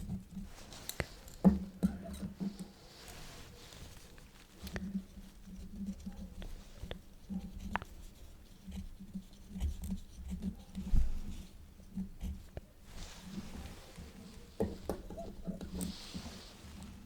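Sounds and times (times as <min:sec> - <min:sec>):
quill pen scratching paper: 0:04.7 - 0:12.6.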